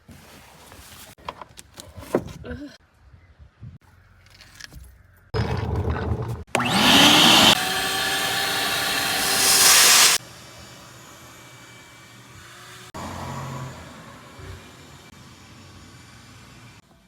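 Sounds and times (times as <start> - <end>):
vacuum cleaner motor whining: 6.5 - 16.8.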